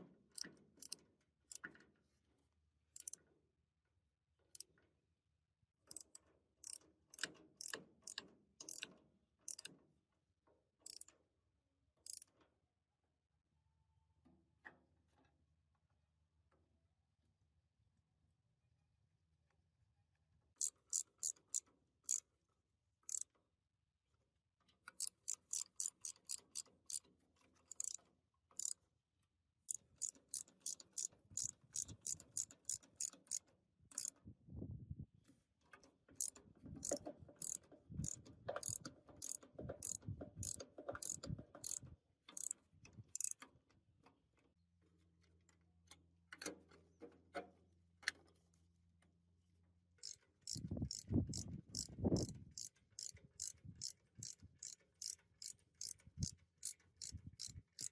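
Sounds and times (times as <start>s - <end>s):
metallic ratchet clicks: 0.3s - 1.7s, 3.0s - 3.3s, 4.5s - 4.8s, 5.8s - 9.8s, 10.8s - 11.2s, 12.0s - 12.3s, 20.6s - 22.3s, 23.1s - 23.3s, 24.9s - 28.8s, 29.6s - 34.2s, 36.2s - 43.4s, 50.0s - 57.9s.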